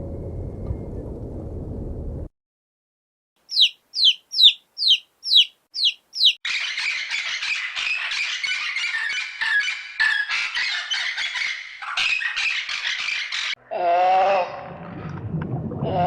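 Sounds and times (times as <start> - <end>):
din of many bird calls: 3.4 - 13.6.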